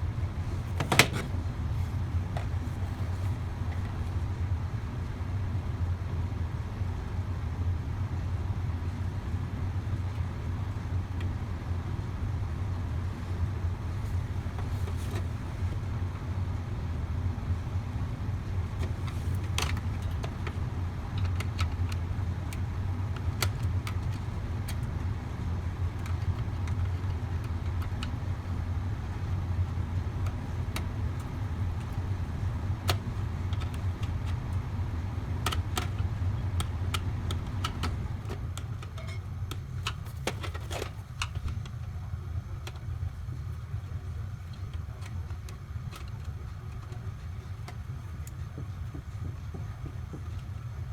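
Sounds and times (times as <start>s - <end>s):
furnace motor humming: 0.0s - 50.9s
small clicks and taps: 32.8s - 34.6s, 35.4s - 42.0s, 44.5s - 50.8s.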